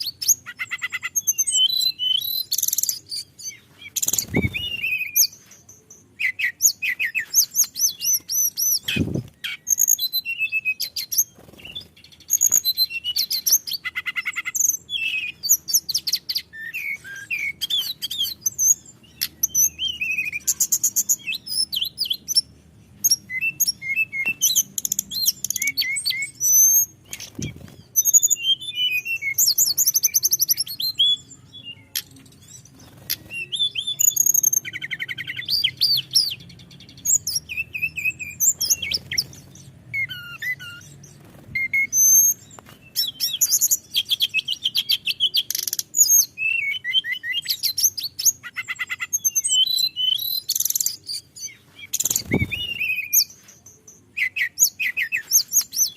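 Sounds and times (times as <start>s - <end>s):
bird singing trills and whistles: 0.0s - 55.9s.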